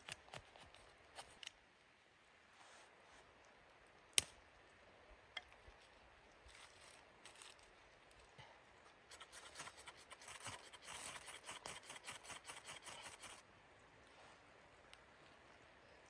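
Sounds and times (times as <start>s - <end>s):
faint scraping and rustling: 2.4s - 3.4s, 5.4s - 13.4s, 14.0s - 16.0s.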